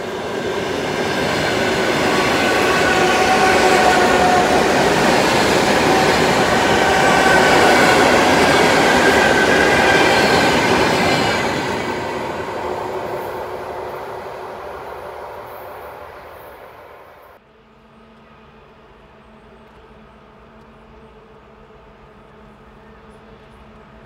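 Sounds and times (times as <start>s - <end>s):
train passing: 0.0s - 17.4s
high train whine: 0.0s - 24.0s.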